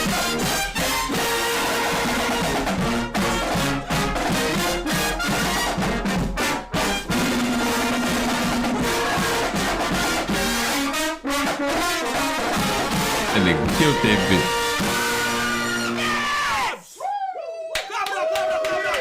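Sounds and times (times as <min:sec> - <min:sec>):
brass band playing: 0:12.8 - 0:15.1.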